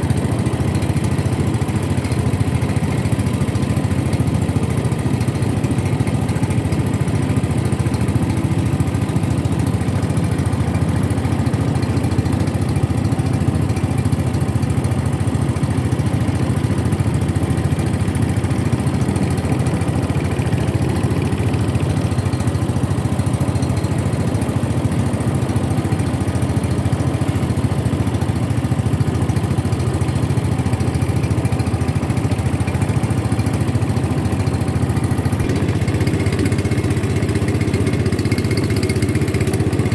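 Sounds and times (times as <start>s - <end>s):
boat motor droning: 0.0s - 39.9s.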